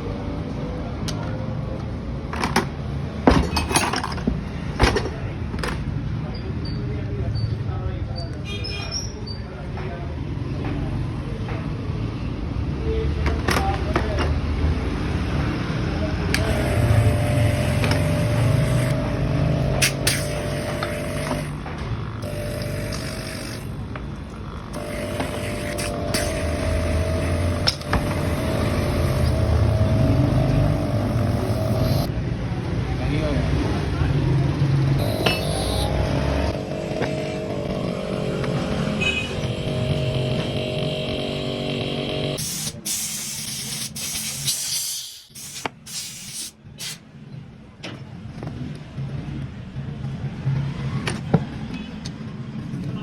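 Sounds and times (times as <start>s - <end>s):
machine humming and whining: 16.2s - 32.1s, 34.7s - 42.6s
motor running: 16.3s - 23.8s, 24.5s - 32.1s, 35.0s - 42.8s
hissing bursts of spray: 19.8s - 21.2s, 24.8s - 27.5s, 42.4s - 47.0s.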